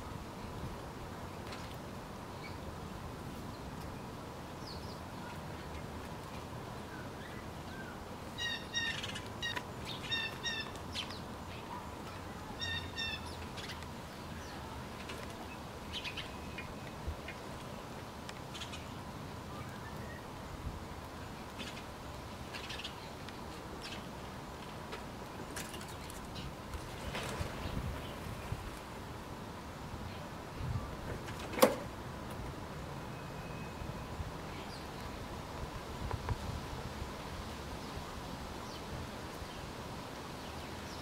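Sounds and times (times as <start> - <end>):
steady outdoor hiss: 0.0 - 41.0
small birds chirping: 3.4 - 24.4.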